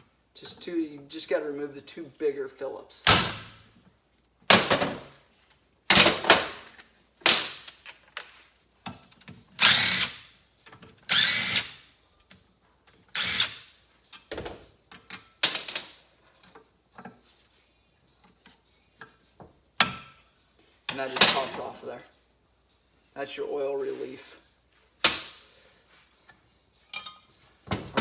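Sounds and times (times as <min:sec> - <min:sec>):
power drill running: 0:11.1 - 0:11.6.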